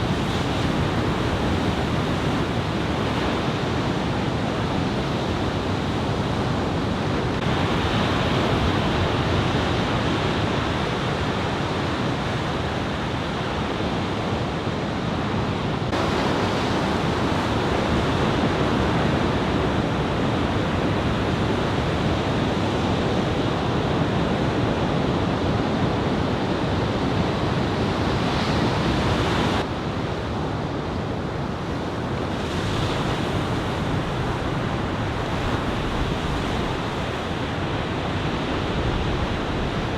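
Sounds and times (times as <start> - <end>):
wind buffeting microphone: 31.1 - 39.9
ocean surf breaking: 31.8 - 39.9.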